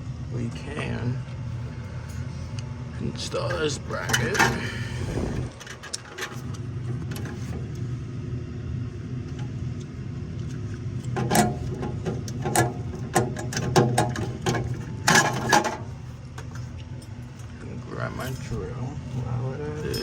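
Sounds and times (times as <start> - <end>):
steady low hum: 0.0 - 20.0
metal parts clinking and knocking: 11.2 - 17.5.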